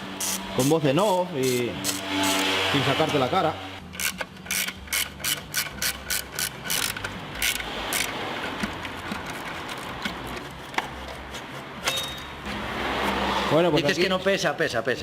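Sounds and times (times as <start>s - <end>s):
ratchet wrench clicking: 0.2s - 0.8s, 1.4s - 2.5s, 3.8s - 10.3s.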